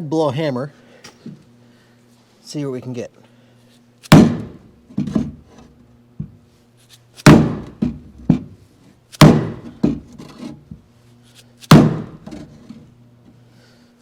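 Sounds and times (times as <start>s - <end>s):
hammer knocking on steel panel: 4.1s - 5.2s, 7.3s - 8.5s, 9.2s - 10.0s.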